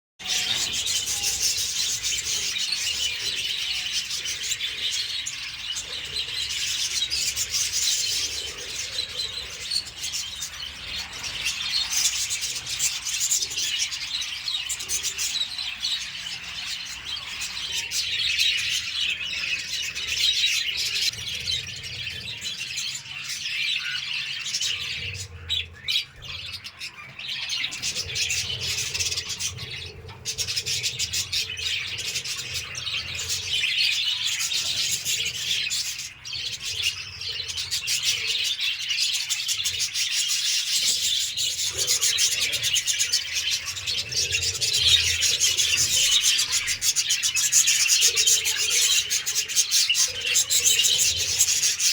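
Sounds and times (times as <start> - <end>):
parrots chirping and chattering: 0.2 - 51.9.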